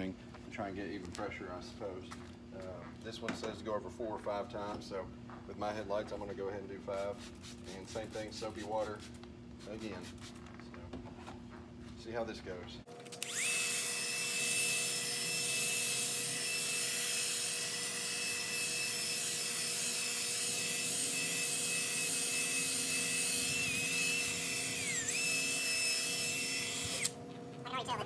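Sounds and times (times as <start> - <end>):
drill motor whine: 13.2 - 27.2.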